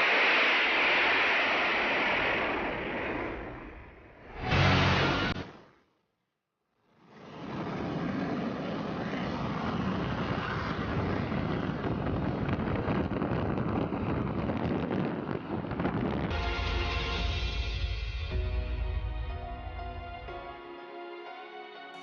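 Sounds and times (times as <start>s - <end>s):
jet engine noise: 0.0s - 5.7s, 7.0s - 17.9s.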